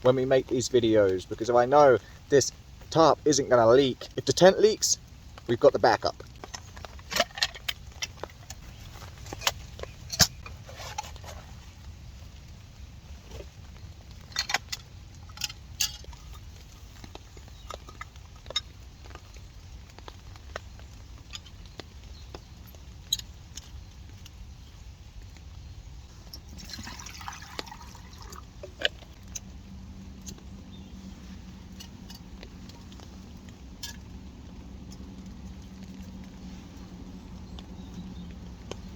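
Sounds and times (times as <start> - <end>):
raindrops tapping on tarp: 0.0 - 38.9
steady rain: 0.0 - 38.9.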